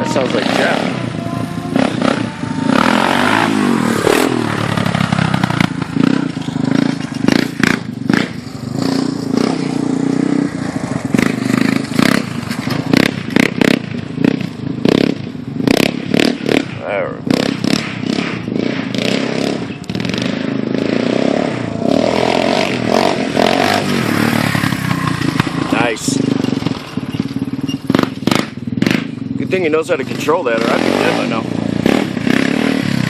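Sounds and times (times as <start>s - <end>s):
atv engine revving: 0.0s - 33.0s
sharp clattering knocks: 26.2s - 29.2s.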